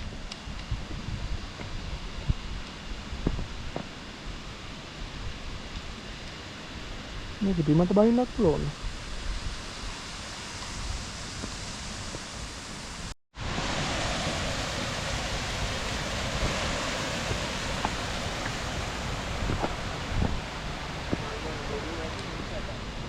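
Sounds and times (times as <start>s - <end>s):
waterfall rushing: 9.8s - 23.0s.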